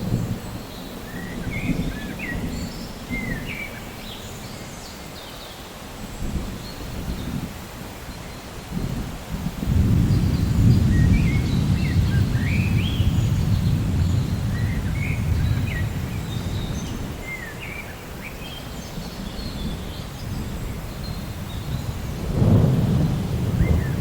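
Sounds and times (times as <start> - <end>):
faint hiss of rain: 0.0 - 24.0
rolling thunder: 8.7 - 17.3, 19.0 - 24.0
birds chirping: 9.9 - 24.0.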